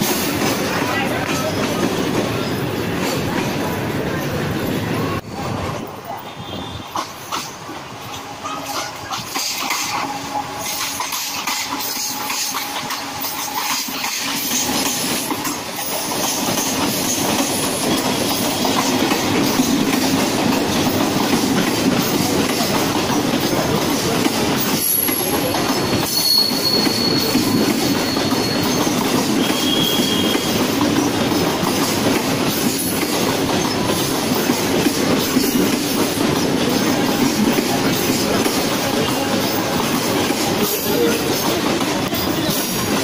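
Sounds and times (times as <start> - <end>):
train wheels rumbling on rails: 0.0 - 43.0
train wheels squealing: 6.3 - 19.8, 23.4 - 34.6.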